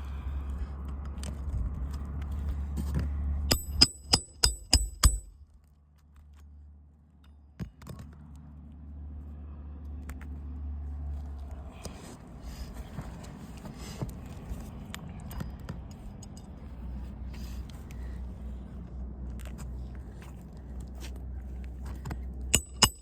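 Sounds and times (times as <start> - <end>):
hammer striking nail: 3.5 - 5.3, 22.6 - 23.0.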